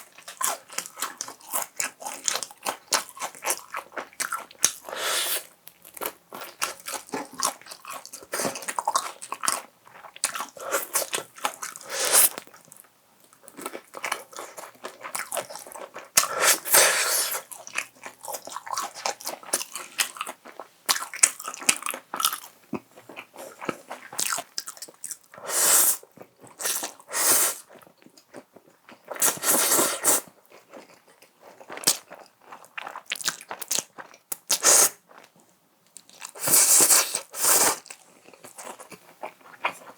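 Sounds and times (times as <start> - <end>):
chewing: 0.0 - 16.6, 36.0 - 39.9.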